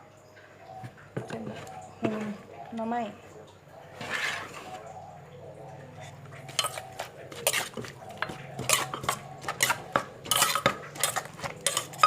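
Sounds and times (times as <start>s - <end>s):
utensils knocking in a mortar: 6.5s - 12.0s.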